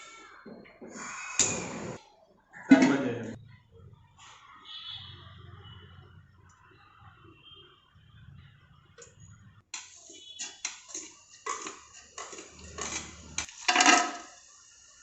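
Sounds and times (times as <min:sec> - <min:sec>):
utensils clattering and scraping: 0:10.0 - 0:14.2.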